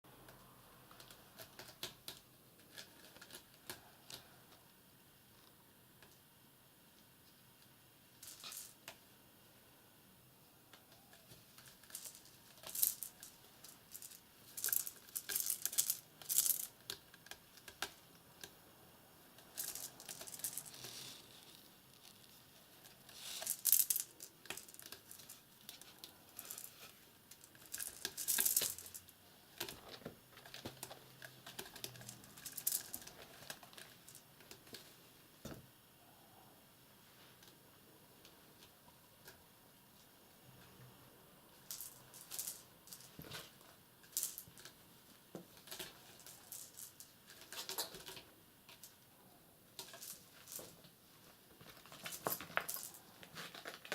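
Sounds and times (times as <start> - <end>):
soft rustling and crinkling: 19.3 - 35.6, 36.9 - 49.1, 49.7 - 53.9.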